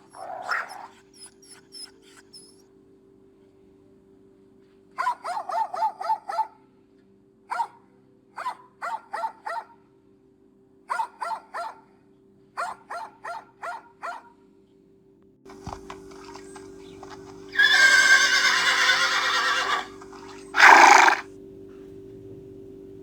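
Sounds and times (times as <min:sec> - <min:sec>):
dog yapping: 0:00.0 - 0:02.6, 0:05.0 - 0:06.5, 0:08.4 - 0:09.7, 0:10.9 - 0:11.8, 0:12.6 - 0:14.3, 0:17.6 - 0:21.2.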